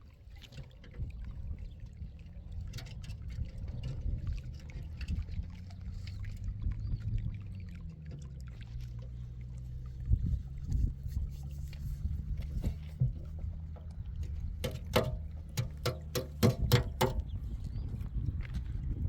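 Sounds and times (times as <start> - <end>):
knocks and clatter: 12.6 - 17.4.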